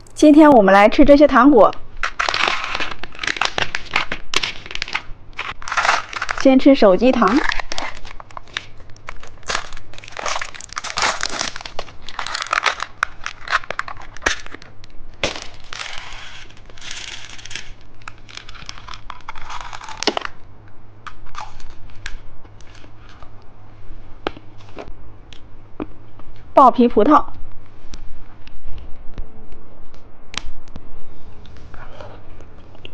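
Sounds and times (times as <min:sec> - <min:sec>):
plastic packaging crinkling: 0:02.0 - 0:20.4.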